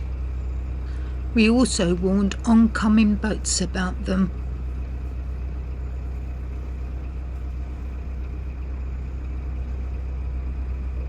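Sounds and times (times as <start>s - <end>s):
boat diesel engine running: 0.0s - 11.0s.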